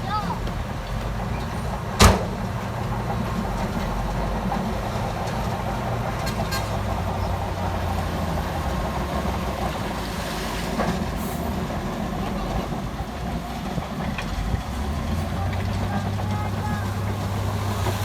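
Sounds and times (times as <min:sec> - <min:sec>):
diesel engine running: 0:00.0 - 0:18.0
sharp loud bang: 0:02.0 - 0:02.4.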